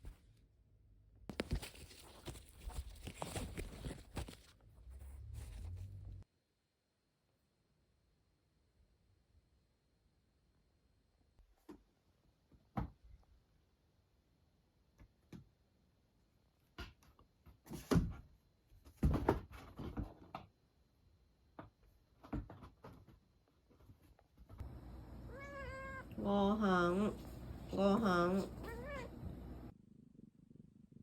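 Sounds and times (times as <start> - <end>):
cat meowing: 25.1 - 26.3, 28.2 - 29.3.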